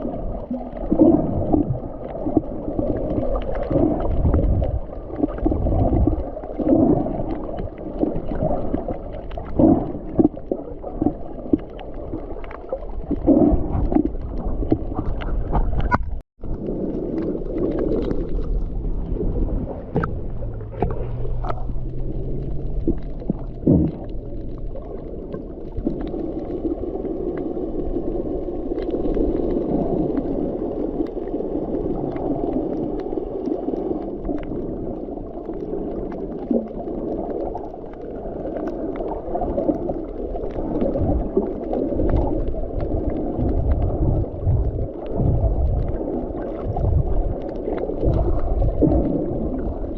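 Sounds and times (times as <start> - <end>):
water sloshing and gurgling: 0.0 - 49.9
low rumbles: 13.2 - 27.0, 42.0 - 49.9.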